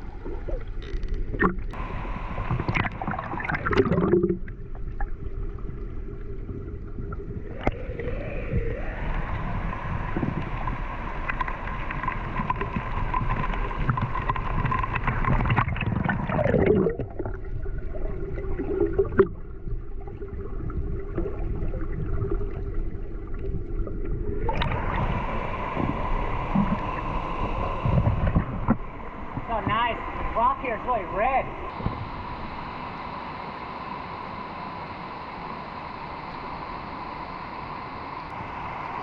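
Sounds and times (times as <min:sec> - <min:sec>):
river water rushing and gurgling: 0:01.4 - 0:04.3, 0:24.2 - 0:39.0.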